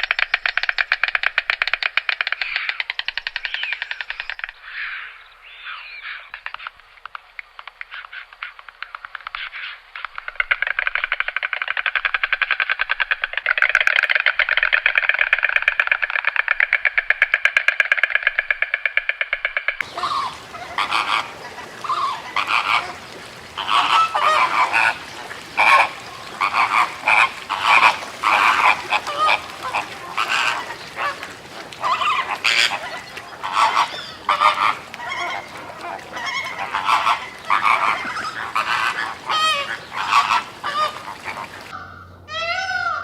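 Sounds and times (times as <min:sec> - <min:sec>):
flamingos honking: 0:19.8 - 0:43.0.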